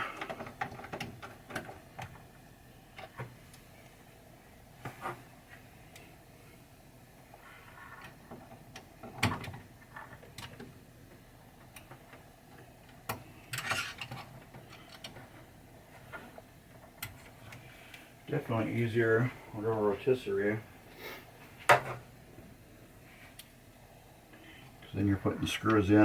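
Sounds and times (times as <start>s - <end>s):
small parts clicking and knocking: 0.0s - 2.3s.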